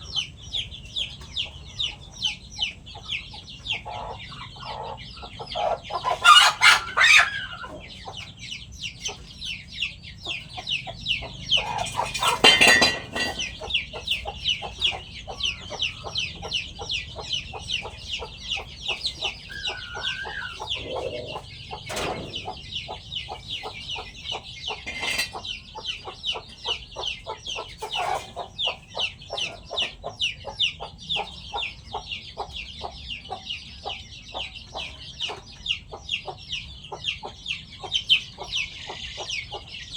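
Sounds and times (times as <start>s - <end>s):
chickens clucking: 0.0s - 39.9s
rooster crowing: 19.5s - 21.4s.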